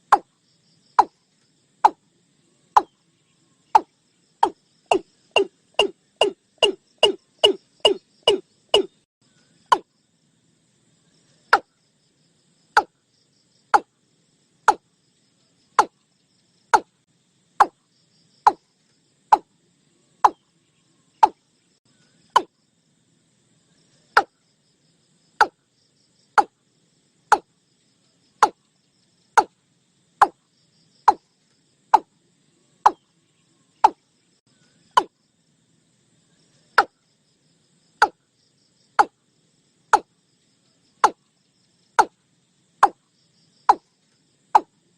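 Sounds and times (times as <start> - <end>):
bird calling sharp notes: 3.8 - 9.0.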